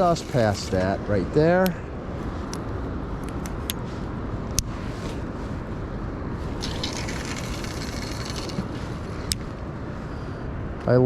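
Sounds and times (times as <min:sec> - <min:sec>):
fishing line hissing off reel: 0:06.6 - 0:08.7
reel and tackle clicks: 0:06.6 - 0:09.4.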